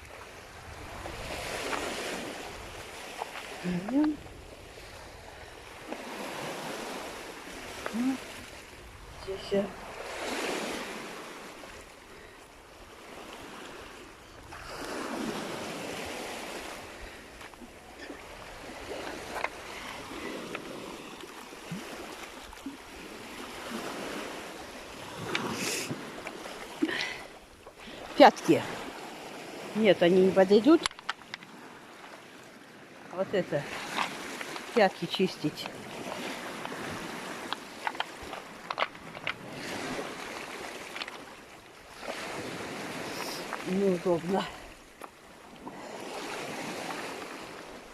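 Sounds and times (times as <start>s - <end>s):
sea surf: 0.0s - 47.9s
waves washing on stony shore: 0.0s - 47.9s
wind: 0.0s - 47.9s
stones clicking and knocking: 30.8s - 31.5s, 37.4s - 39.4s.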